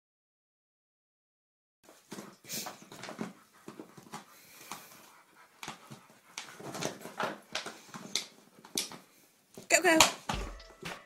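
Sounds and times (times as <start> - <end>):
dog panting: 1.9 - 9.4.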